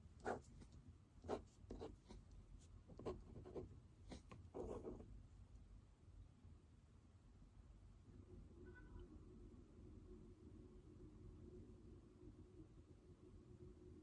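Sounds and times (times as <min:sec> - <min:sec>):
pen scratching on paper: 0:00.0 - 0:05.1.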